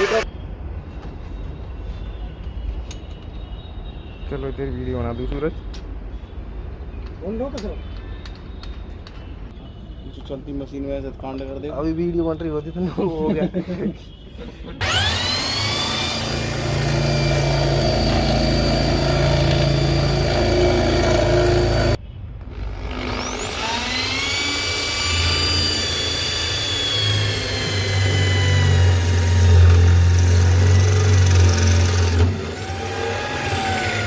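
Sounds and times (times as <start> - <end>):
electric drill whining: 0.0 - 0.2, 14.8 - 22.0, 22.6 - 34.0.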